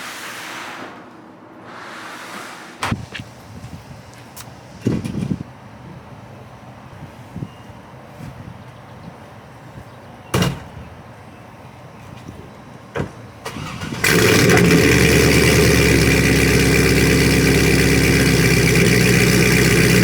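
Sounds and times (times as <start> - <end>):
car engine cranking and idling: 12.9 - 20.0.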